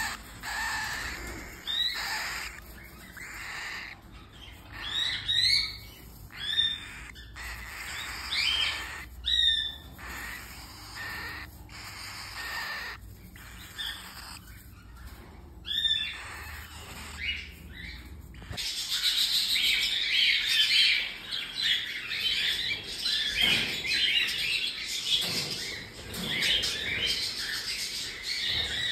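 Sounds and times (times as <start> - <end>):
cockatiel chicks chirping: 0.0 - 28.9.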